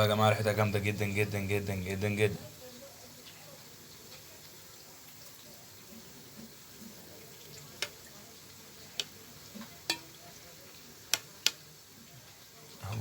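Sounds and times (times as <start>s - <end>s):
faint room noise: 0.0s - 13.0s.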